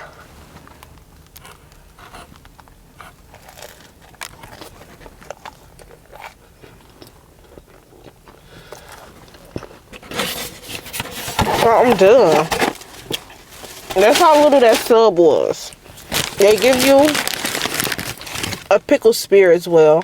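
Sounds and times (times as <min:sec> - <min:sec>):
close-miked chewing and mouth smacks: 0:00.9 - 0:09.9.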